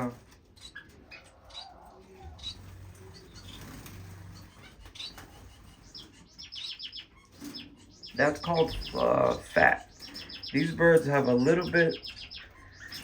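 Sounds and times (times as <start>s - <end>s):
wings fluttering: 0.0s - 6.4s
finches chirping: 0.0s - 13.0s.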